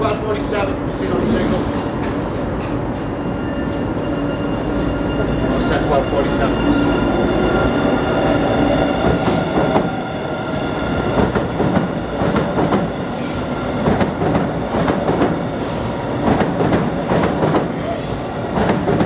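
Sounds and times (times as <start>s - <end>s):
train wheels clicking over rail joints: 8.2s - 19.0s.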